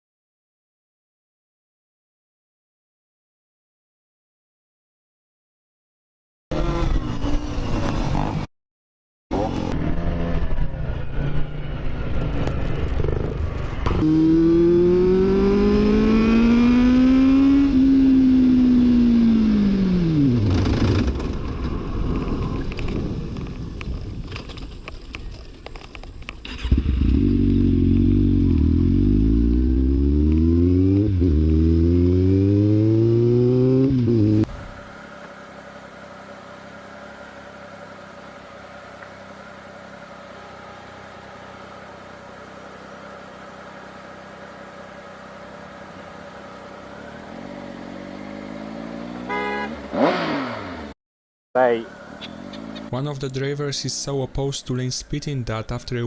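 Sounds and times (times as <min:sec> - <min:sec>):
motorcycle engine revving: 0:06.5 - 0:08.5, 0:09.3 - 0:24.8, 0:26.4 - 0:51.0, 0:51.6 - 0:53.0.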